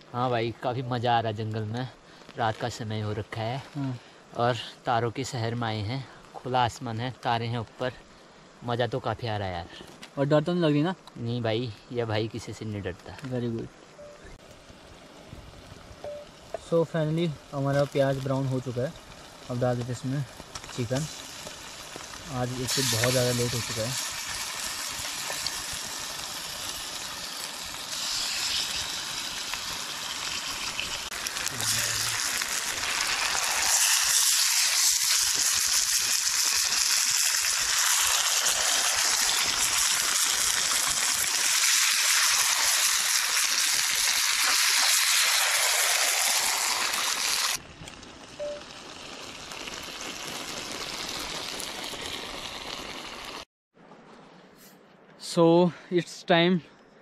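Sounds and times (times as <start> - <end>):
chicken sizzling in hot oil: 14.0 - 53.5.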